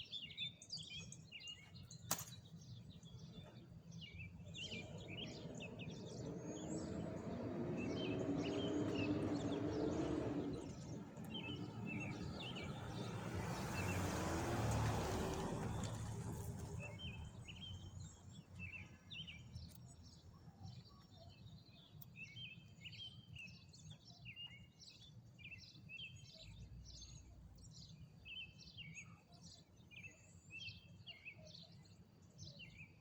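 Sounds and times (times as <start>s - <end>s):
small birds chirping: 0.0s - 33.0s
sharp click: 2.1s - 2.4s
broad rushing noise: 4.6s - 14.8s.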